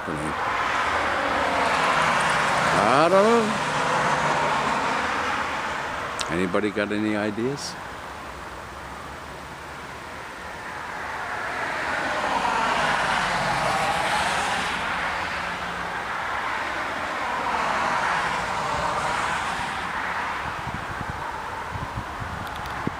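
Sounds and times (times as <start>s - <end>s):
road vehicles passing by: 0.0s - 22.9s.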